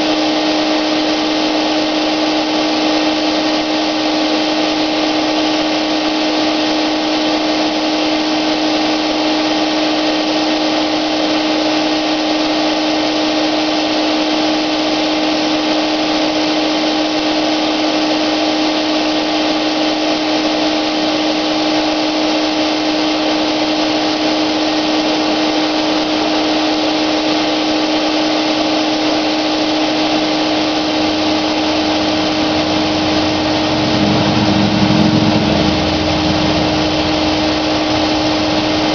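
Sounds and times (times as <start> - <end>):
electric paint sprayer humming: 0.0 - 38.9
deep rumble: 31.7 - 38.9.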